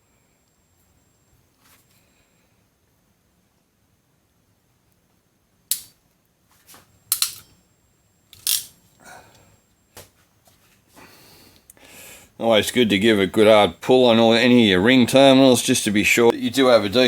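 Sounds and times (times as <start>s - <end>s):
crimping tool clicks and snaps: 5.7s - 6.0s, 7.1s - 7.5s, 8.3s - 8.8s.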